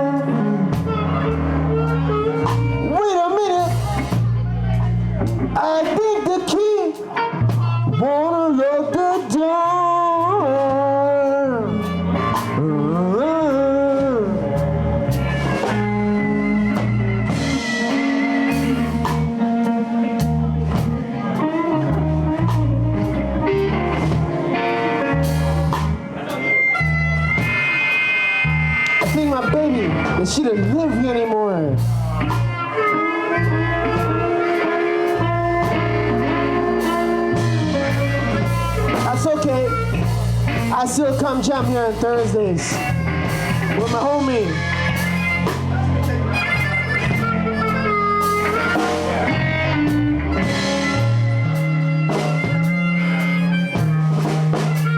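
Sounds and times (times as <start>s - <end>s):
person singing: 0.0s - 53.8s
bass guitar: 0.0s - 54.9s
blues band playing: 0.0s - 54.9s
drums: 0.0s - 54.9s
electric guitar lead: 0.0s - 54.9s
drums with cymbal hits: 16.7s - 19.5s, 24.0s - 29.5s, 42.7s - 54.9s.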